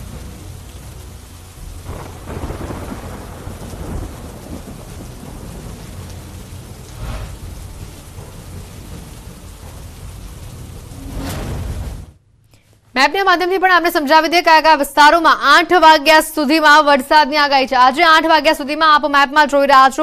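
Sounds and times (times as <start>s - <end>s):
heavy rain pouring: 0.0s - 12.2s
deep thunder rumbles: 0.0s - 12.4s.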